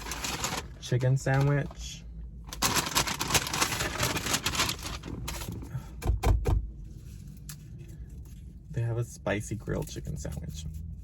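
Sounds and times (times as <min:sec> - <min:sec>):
paper bag crinkling: 0:00.0 - 0:01.6, 0:02.5 - 0:05.5.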